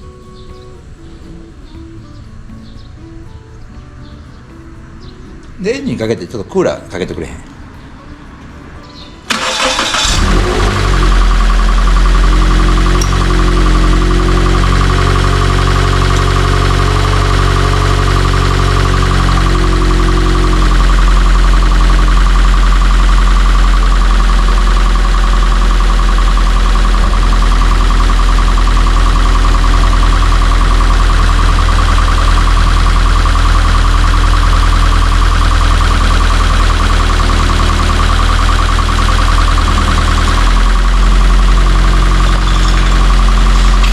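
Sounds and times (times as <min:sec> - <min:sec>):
car engine starting and idling: 0:09.2 - 0:43.9
steady whine: 0:09.3 - 0:43.9.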